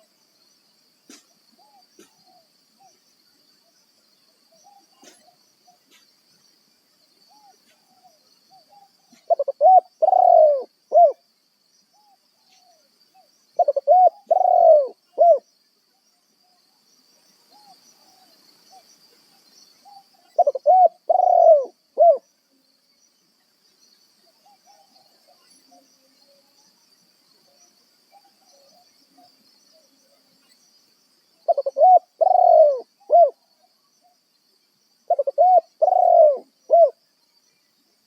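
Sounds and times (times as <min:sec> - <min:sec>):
faint bird calls: 0:04.5 - 0:06.1, 0:07.3 - 0:11.2, 0:11.9 - 0:16.6, 0:17.5 - 0:22.3, 0:31.4 - 0:34.2, 0:35.1 - 0:37.0
dove cooing: 0:07.3 - 0:11.2, 0:13.6 - 0:15.4, 0:19.9 - 0:22.2, 0:31.5 - 0:33.4, 0:35.1 - 0:37.0.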